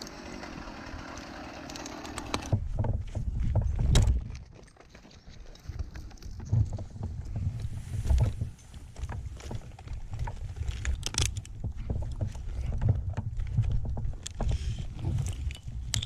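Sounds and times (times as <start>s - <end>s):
climbing gear clicks and knocks: 0.0s - 16.0s
wind rumble on microphone: 2.3s - 4.5s, 5.6s - 16.0s
microphone handling noise: 6.4s - 15.9s.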